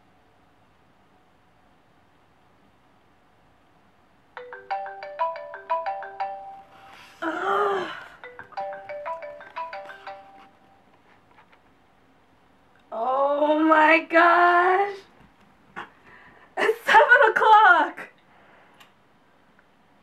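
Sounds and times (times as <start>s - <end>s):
marimba ringtone melody: 4.4s - 7.2s, 8.2s - 10.9s
person's drawn-out vocal sound: 7.0s - 8.3s.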